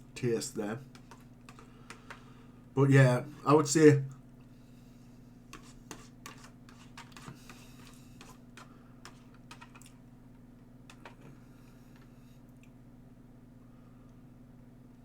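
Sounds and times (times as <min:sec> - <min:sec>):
low steady hum: 0:00.0 - 0:15.0
faint clicks and taps: 0:00.9 - 0:02.3, 0:05.5 - 0:11.3.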